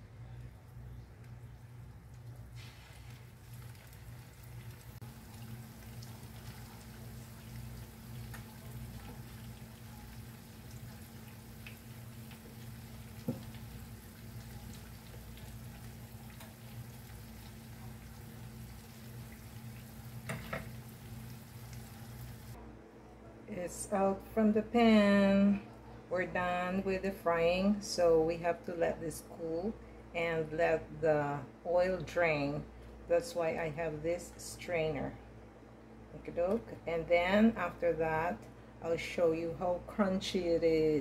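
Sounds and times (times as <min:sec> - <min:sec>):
food sizzling in oil: 0:02.6 - 0:22.6.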